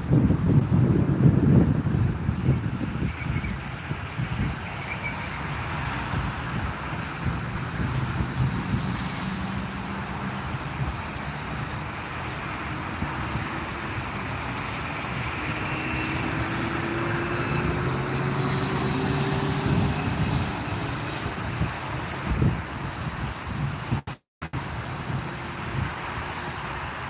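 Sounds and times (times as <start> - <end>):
jet engine roar: 1.1 - 22.4.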